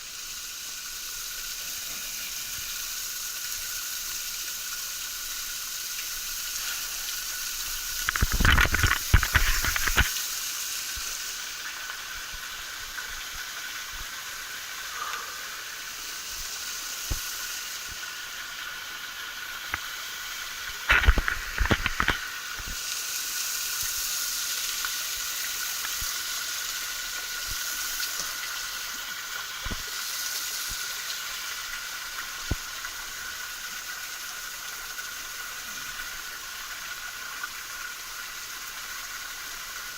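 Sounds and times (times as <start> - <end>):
waterfall falling water: 0.0 - 39.9
loud crackling noise: 7.8 - 10.2, 20.6 - 22.7.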